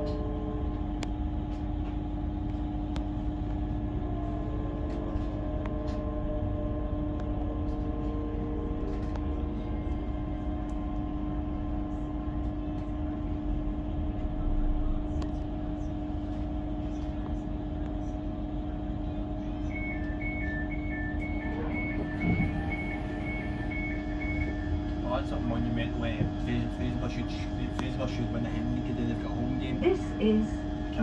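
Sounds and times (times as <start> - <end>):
train rumble: 0.0 - 31.0
electric hum: 20.0 - 31.0.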